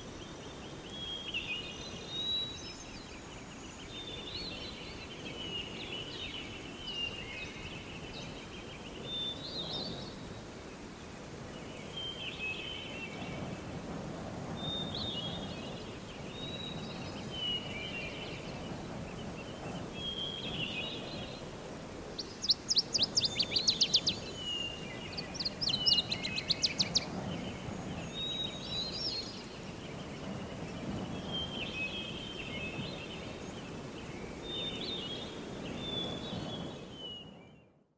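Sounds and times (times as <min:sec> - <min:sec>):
songbirds chirping: 0:00.0 - 0:13.9, 0:14.5 - 0:37.8.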